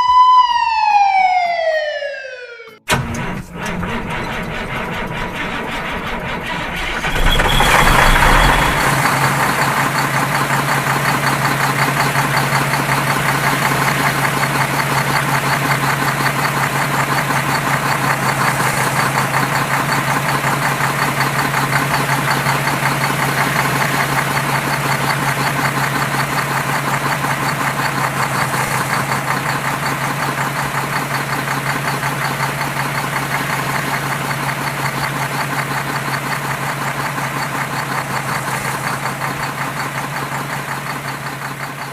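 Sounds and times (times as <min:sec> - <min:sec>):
engine starting and idling: 0:02.9 - 0:41.9.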